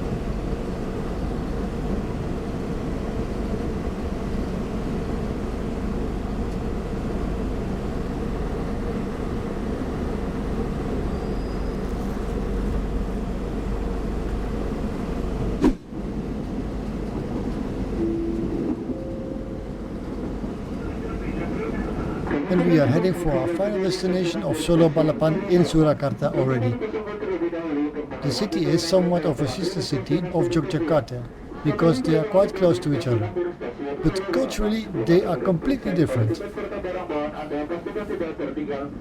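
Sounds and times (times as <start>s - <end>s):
train rolling rumble: 0.0s - 39.0s.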